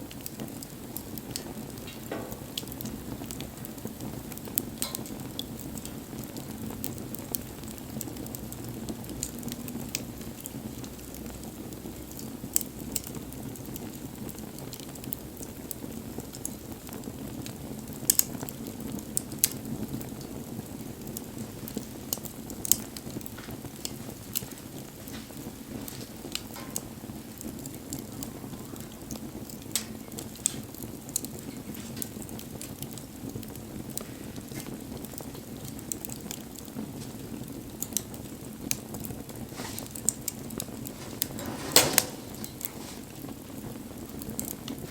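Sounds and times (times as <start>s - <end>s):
fire crackling and popping: 0.0s - 44.9s
rush of flames: 33.8s - 44.9s.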